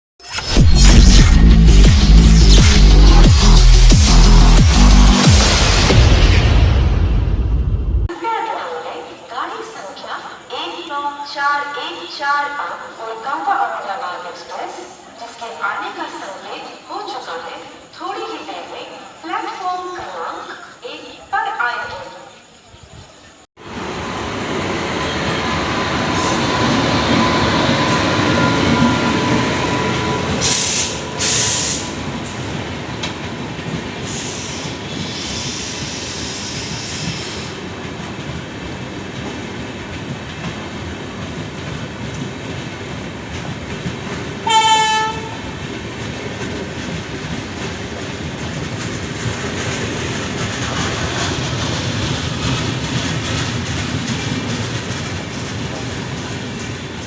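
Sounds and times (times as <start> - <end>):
train wheels clattering: 26.1 - 57.0
train horn blast: 44.4 - 45.5.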